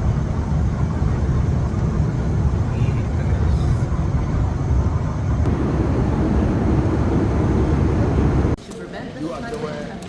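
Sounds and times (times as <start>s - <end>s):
low rumbling noise: 3.6s - 8.6s.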